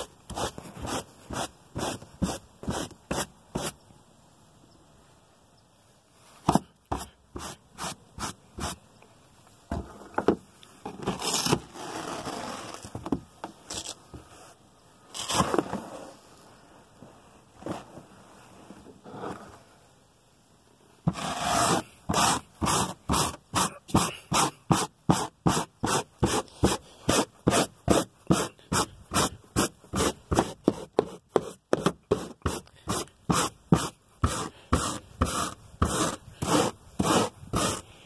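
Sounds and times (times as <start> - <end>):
brush scrubbing carpet: 21.1 - 37.9.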